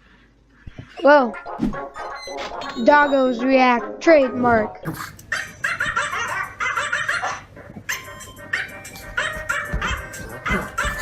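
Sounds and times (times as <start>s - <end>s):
music playing: 1.4s - 4.9s.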